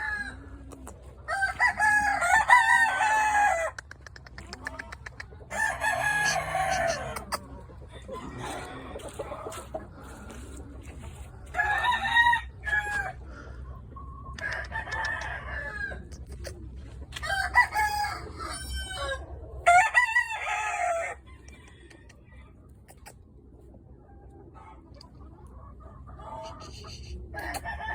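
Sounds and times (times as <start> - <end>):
roosters crowing: 0.0 - 0.6, 1.2 - 4.0, 5.5 - 10.6, 11.4 - 13.7, 14.4 - 16.1, 17.1 - 22.2, 26.2 - 27.9
low steady rumble: 0.0 - 20.5.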